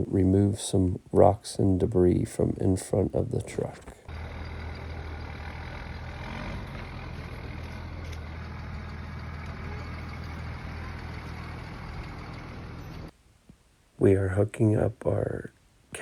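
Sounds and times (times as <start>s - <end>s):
skid loader engine running: 4.0s - 13.1s.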